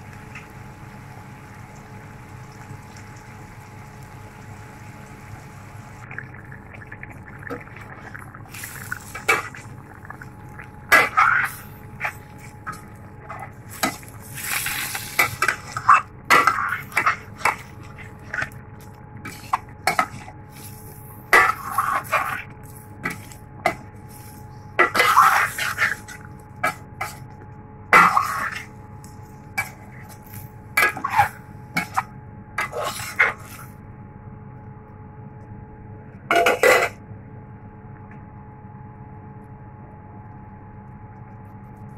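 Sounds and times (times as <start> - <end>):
faint hum: 0.0 - 41.9
spatula scraping a pot: 10.9 - 18.5, 24.8 - 27.2, 30.8 - 32.0, 32.6 - 33.7.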